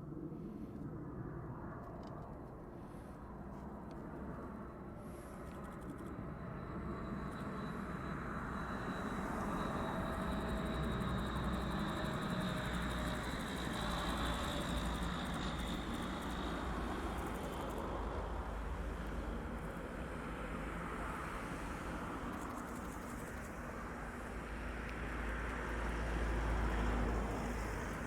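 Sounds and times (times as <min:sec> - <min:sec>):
turboprop engines whining: 0:00.1 - 0:28.0.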